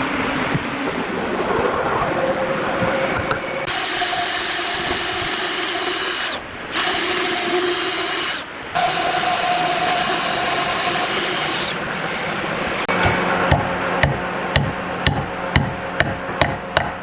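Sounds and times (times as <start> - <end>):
power tool whining: 3.3 - 13.4.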